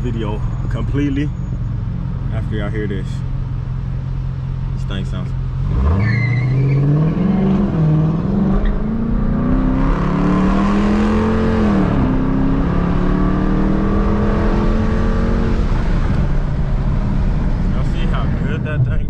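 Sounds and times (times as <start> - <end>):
car engine accelerating hard: 4.6 - 19.0.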